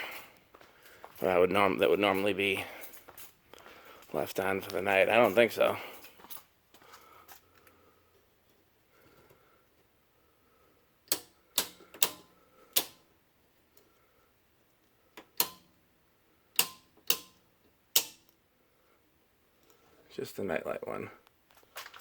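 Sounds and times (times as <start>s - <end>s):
circuit breaker switches clicking: 11.1s - 13.0s, 15.2s - 15.7s, 16.6s - 18.3s.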